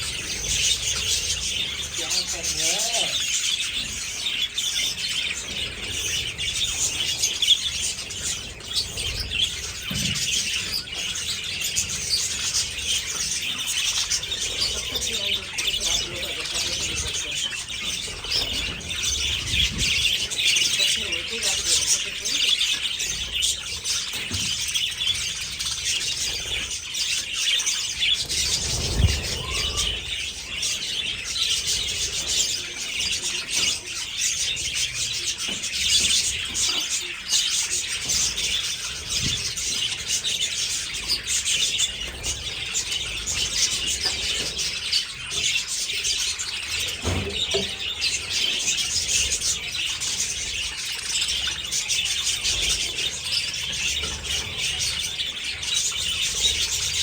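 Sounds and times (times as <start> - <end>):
budgerigars chattering and chirping: 0.0 - 57.0.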